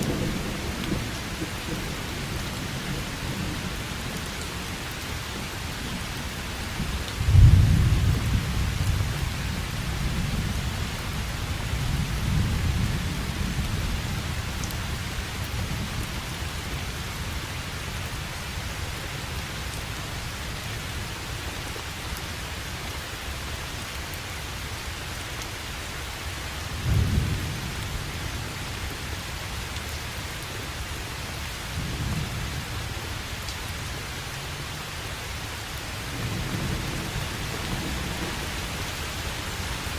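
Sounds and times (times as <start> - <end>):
steady rain: 0.0 - 39.9
thunder rumbling: 7.1 - 10.6.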